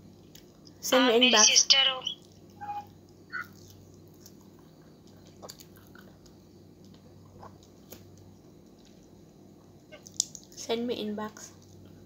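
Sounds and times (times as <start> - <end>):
soft wet chewing: 0.2 - 0.8, 2.2 - 10.6.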